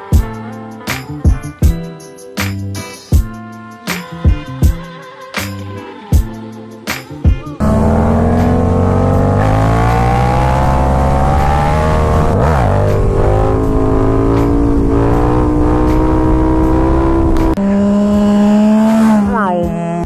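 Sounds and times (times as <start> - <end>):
motorcycle engine revving: 7.6 - 20.0.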